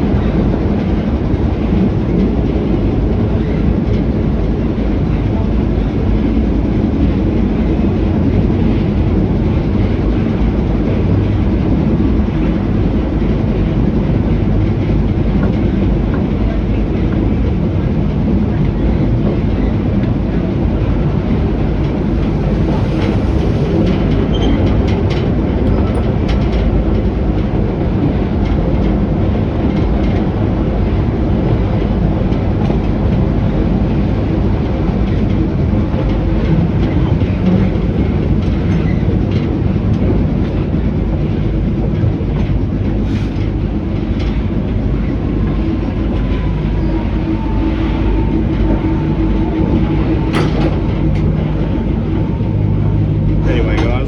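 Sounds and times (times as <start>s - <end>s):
train rumbling along track: 0.0s - 54.0s.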